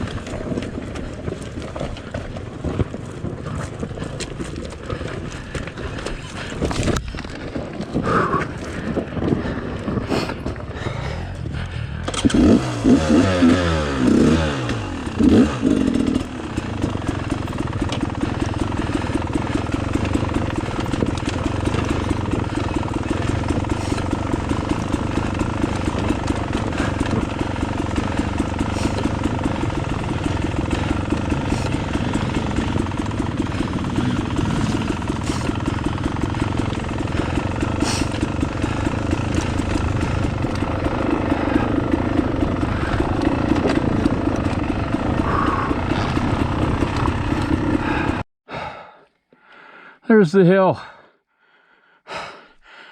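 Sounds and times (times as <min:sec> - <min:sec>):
motorcycle engine revving: 0:08.0 - 0:48.3.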